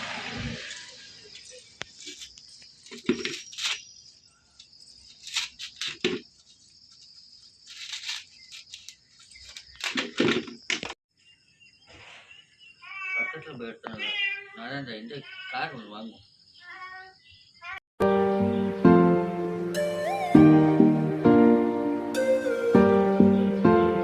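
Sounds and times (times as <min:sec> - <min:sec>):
rustling and handling noises: 0:01.4 - 0:03.9, 0:04.6 - 0:10.9.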